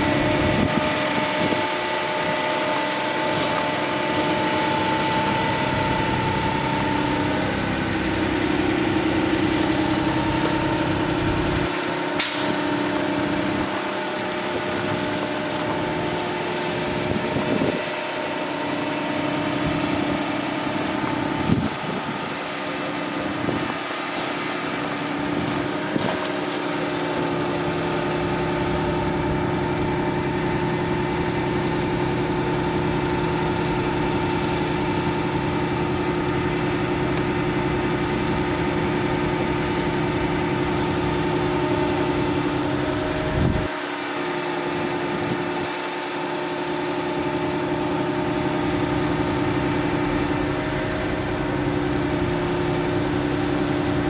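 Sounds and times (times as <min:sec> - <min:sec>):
truck machine hum: 0:00.0 - 0:54.0.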